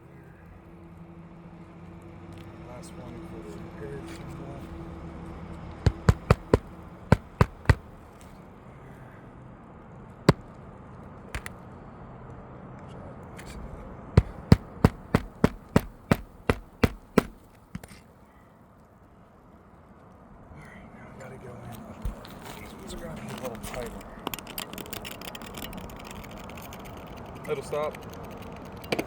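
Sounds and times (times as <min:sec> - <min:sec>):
hammer striking nails: 0:05.9 - 0:07.9, 0:14.2 - 0:18.0.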